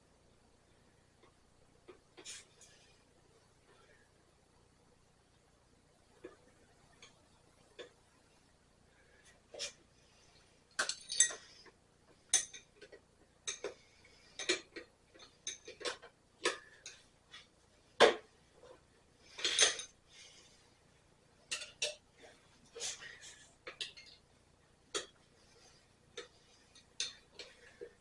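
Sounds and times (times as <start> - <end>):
metal tools clinking: 10.8 - 11.5, 19.4 - 19.9.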